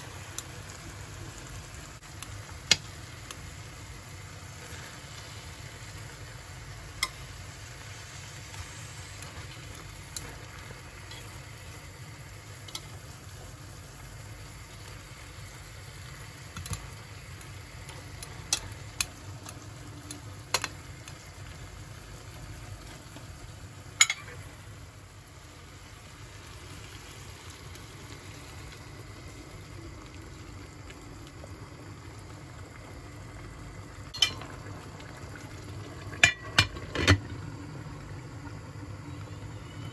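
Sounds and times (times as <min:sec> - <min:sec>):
food sizzling in a pan: 0:00.0 - 0:39.9
utensil clinking on pan: 0:24.0 - 0:24.3, 0:34.1 - 0:34.4.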